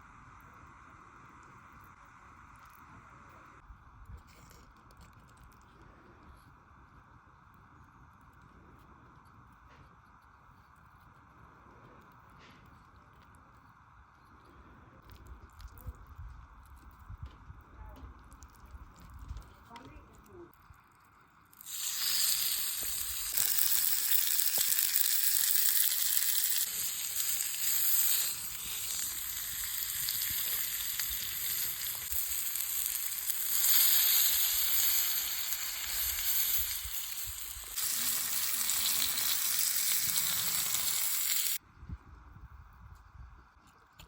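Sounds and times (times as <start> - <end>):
meat sizzling in a pan: 21.5 - 41.6.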